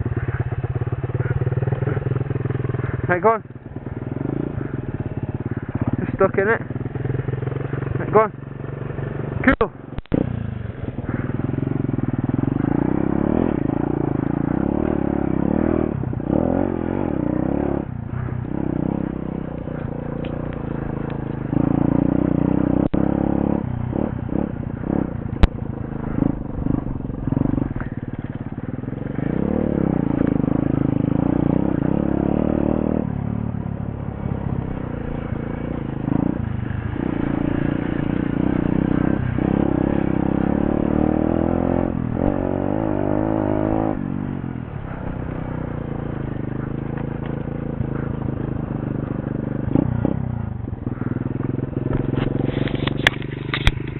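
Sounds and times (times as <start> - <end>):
motorbike engine revving: 0.0 - 53.9
sharp click: 52.7 - 53.9.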